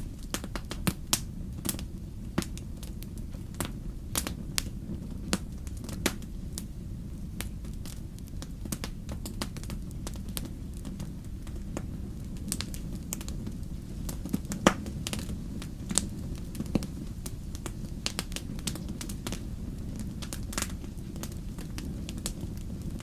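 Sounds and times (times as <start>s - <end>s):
campfire crackling: 0.0s - 23.0s
sharp pops of fire: 0.0s - 23.0s.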